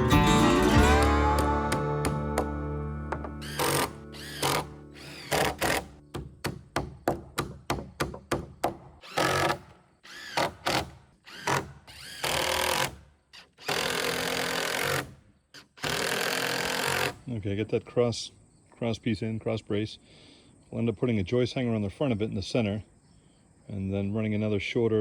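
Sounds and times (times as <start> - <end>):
power drill running: 3.1 - 6.0, 9.0 - 17.2.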